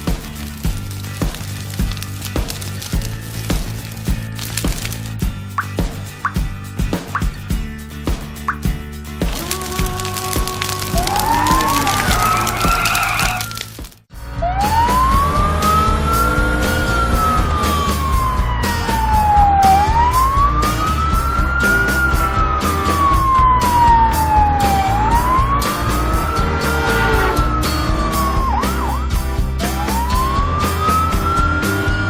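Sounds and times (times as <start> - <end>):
background music with beat: 0.0 - 13.1, 13.8 - 32.0
wailing siren: 11.0 - 13.6, 14.4 - 32.0.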